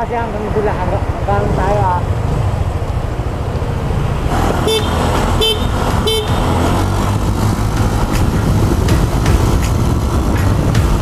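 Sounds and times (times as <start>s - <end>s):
wind noise: 0.0s - 11.0s
motor scooter engine: 4.2s - 11.0s
vehicle horn toots: 4.6s - 6.8s.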